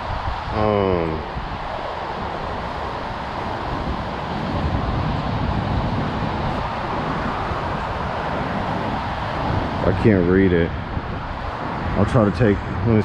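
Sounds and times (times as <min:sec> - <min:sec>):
gusty wind rumble: 0:00.0 - 0:13.0
road traffic noise: 0:00.0 - 0:13.0.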